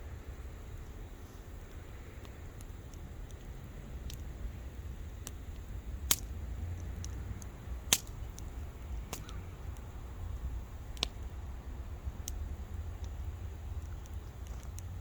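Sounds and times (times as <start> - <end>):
fire low rumble: 0.0 - 15.0
campfire wood popping: 0.2 - 15.0.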